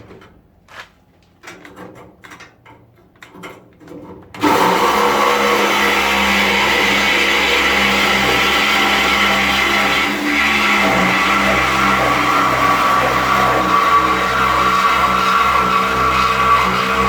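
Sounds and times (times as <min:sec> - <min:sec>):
reciprocating saw cutting steel: 0:04.4 - 0:17.0.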